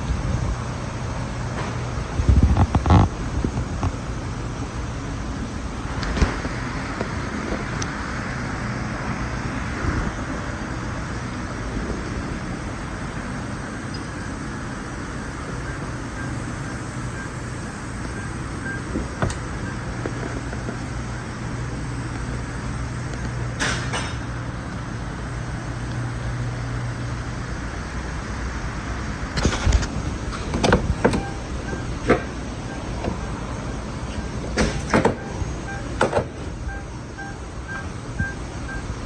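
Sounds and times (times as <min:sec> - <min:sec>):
car engine idling: 0:09.2 - 0:39.0.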